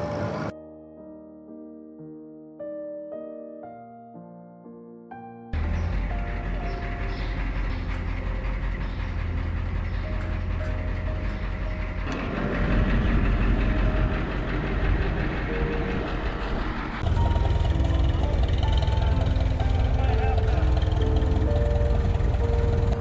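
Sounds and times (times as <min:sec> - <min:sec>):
tractor engines chugging: 0:00.0 - 0:00.5, 0:05.6 - 0:23.0.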